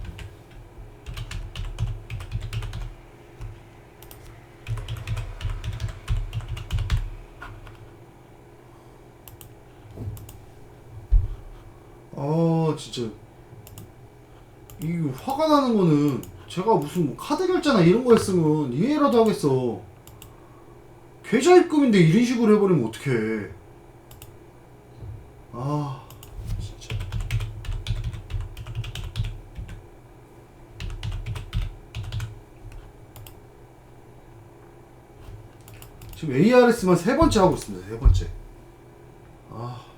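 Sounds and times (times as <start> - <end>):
typing on a computer keyboard: 0.0 - 7.8, 13.6 - 13.9, 20.0 - 20.3, 26.1 - 29.8, 30.8 - 33.4, 35.6 - 36.2.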